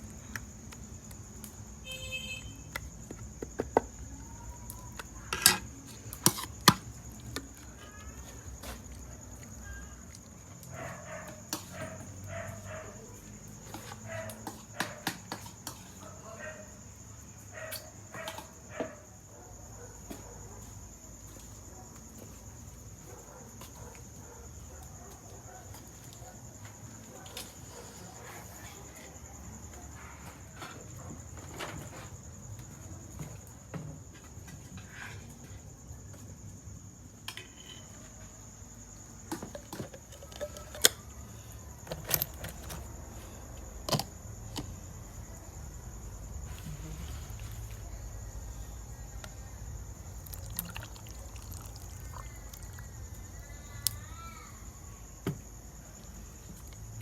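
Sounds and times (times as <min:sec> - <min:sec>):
crickets trilling: 0:00.0 - 0:57.0
insects chirring: 0:00.0 - 0:57.0
small hard objects clinking: 0:50.2 - 0:52.9.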